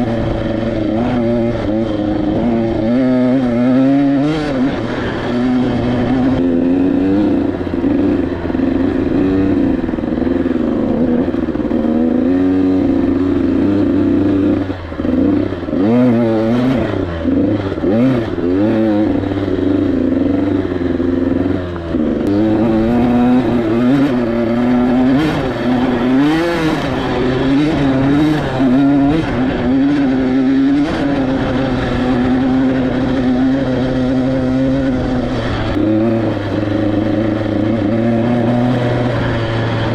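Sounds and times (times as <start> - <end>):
two-stroke motorcycle engine revving: 0.0 - 39.9.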